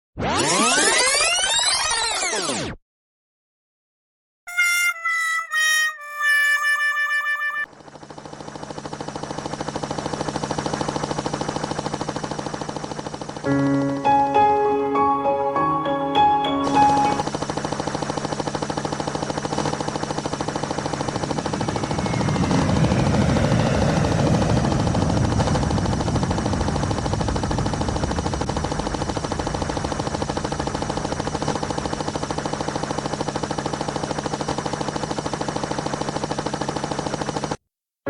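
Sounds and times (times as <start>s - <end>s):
helicopter rotor chopping: 6.2s - 14.3s, 16.6s - 37.6s.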